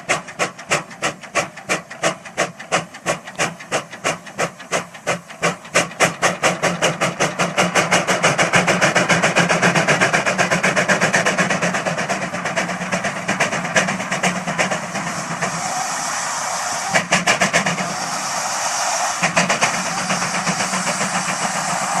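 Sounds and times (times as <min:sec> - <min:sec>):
steam engine exhaust chuffing: 0:00.0 - 0:22.0.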